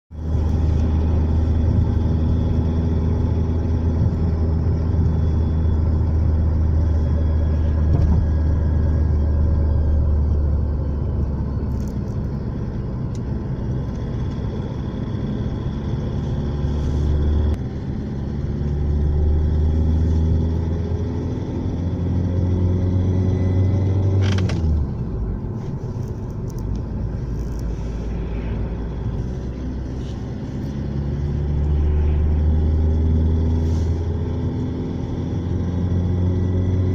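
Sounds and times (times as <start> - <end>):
car engine running: 0.1 - 36.9.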